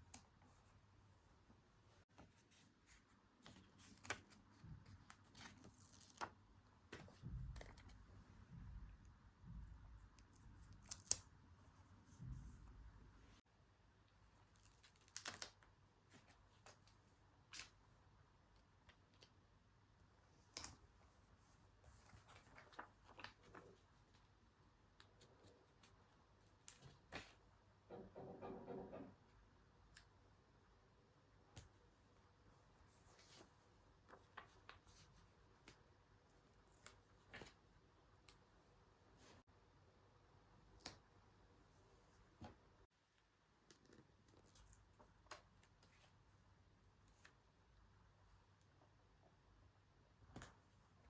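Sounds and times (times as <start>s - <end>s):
soft paper rustles: 0.0s - 8.7s, 14.1s - 19.4s, 20.2s - 27.5s, 31.6s - 38.5s, 40.6s - 47.6s
paper rustling: 21.8s - 24.2s.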